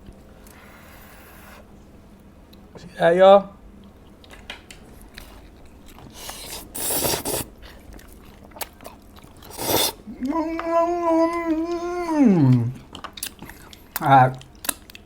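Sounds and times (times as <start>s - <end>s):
wet mouth clicks and chewing: 3.8s - 10.0s, 12.5s - 15.0s
slurping: 5.9s - 13.5s
person humming mmm: 9.5s - 12.8s.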